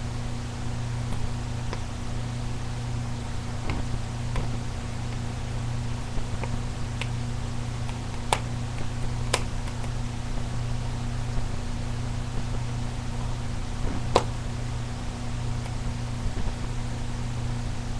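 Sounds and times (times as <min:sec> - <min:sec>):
wood fire crackling: 0:00.0 - 0:17.2
low hum: 0:00.0 - 0:17.9.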